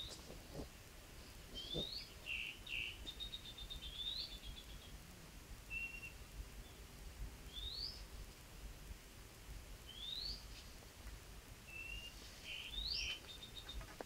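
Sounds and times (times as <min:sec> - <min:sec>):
whistled birdsong: 0:01.5 - 0:05.0, 0:05.7 - 0:06.8, 0:07.5 - 0:08.1, 0:09.8 - 0:10.5, 0:11.6 - 0:14.0.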